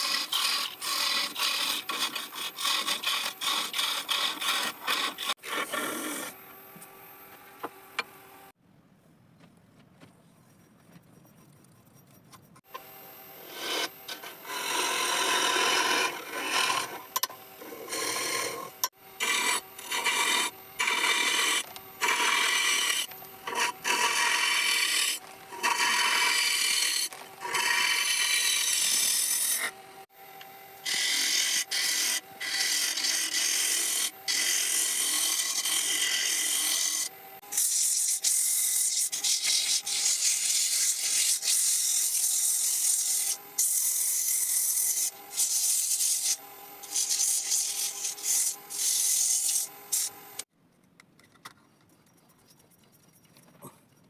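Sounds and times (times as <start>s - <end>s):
abrasive tool scraping wood: 0.0s - 6.4s, 13.4s - 29.8s.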